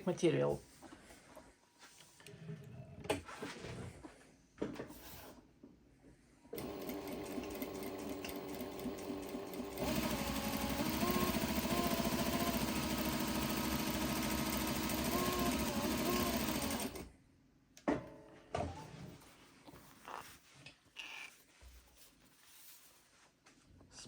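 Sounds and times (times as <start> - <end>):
sewing machine stitching: 6.6 - 17.1.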